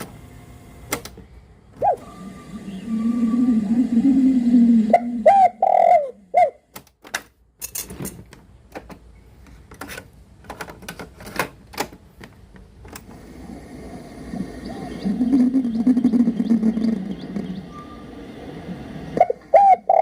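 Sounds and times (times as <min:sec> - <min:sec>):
radio whistling tones: 0:01.8 - 0:06.5, 0:13.4 - 0:20.0
radio hiss: 0:02.0 - 0:05.4, 0:13.1 - 0:19.6
radio static crackles: 0:13.1 - 0:20.0.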